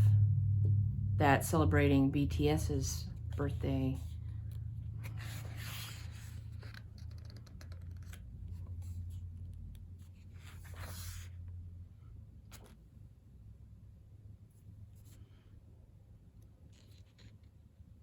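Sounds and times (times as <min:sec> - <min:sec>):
low steady hum: 0:00.0 - 0:18.0
paper pages rustling: 0:03.5 - 0:11.5.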